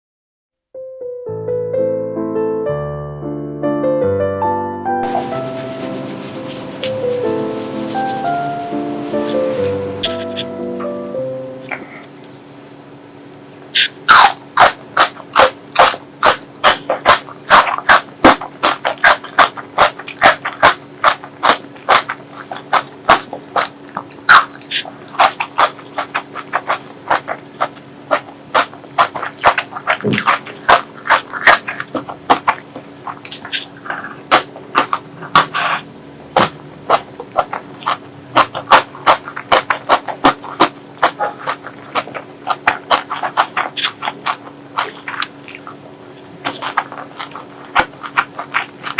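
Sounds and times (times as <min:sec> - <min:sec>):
wet chewing and lip smacking: 0:13.8 - 0:48.9.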